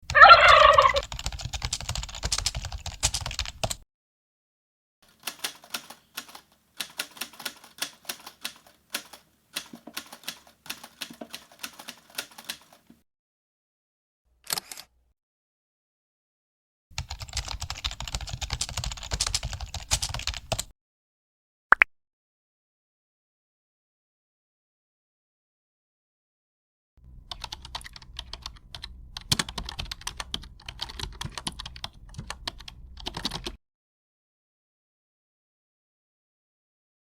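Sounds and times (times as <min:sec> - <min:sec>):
keyboard typing clicks: 0:00.1 - 0:03.8, 0:05.1 - 0:13.0, 0:17.0 - 0:20.7, 0:27.3 - 0:33.6.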